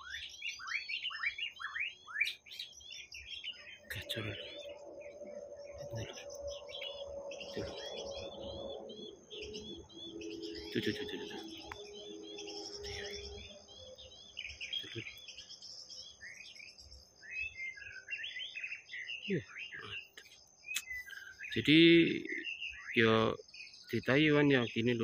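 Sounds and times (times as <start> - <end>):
wild birds chirping and singing: 0.0 - 25.0.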